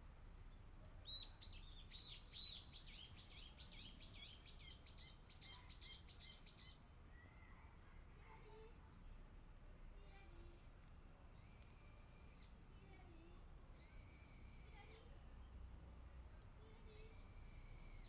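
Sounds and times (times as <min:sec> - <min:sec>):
faint outdoor background: 0:12.1 - 0:18.0.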